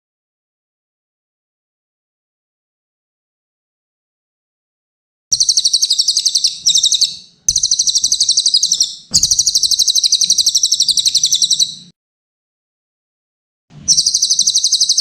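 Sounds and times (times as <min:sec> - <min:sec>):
bird trilling song: 0:05.3 - 0:11.9, 0:13.9 - 0:15.0.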